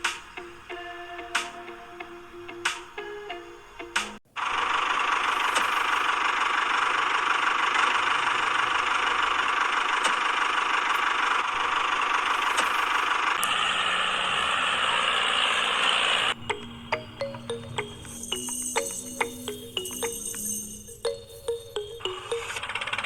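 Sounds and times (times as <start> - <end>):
small motor whirring: 4.4 - 16.4.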